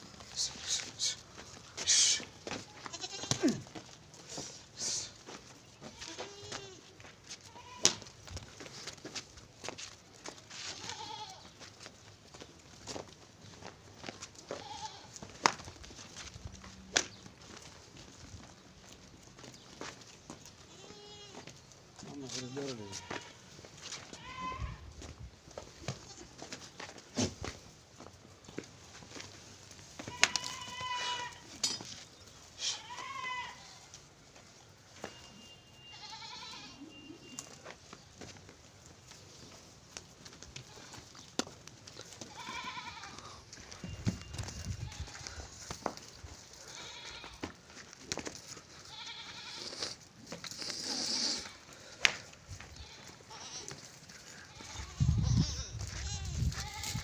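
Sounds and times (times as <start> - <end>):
goat kids bleating: 1.8 - 3.9, 5.8 - 8.1, 10.5 - 11.6, 14.4 - 15.2, 20.6 - 25.1, 25.8 - 27.3, 30.0 - 31.6, 32.4 - 34.1, 35.4 - 37.7, 40.5 - 41.2, 41.9 - 43.8, 44.6 - 47.8, 48.6 - 52.0, 52.6 - 57.0.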